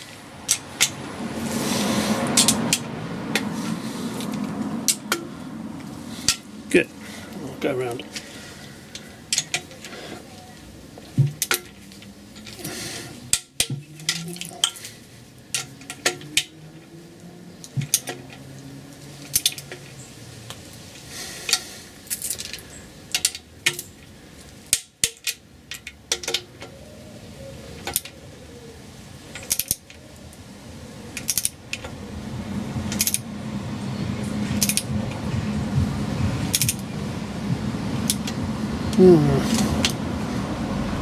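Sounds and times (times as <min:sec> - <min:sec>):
handling noise: 0:08.0 - 0:15.0
torque wrench clicking: 0:31.2 - 0:31.8, 0:32.9 - 0:33.2, 0:34.6 - 0:34.9, 0:36.5 - 0:36.8, 0:38.0 - 0:38.4.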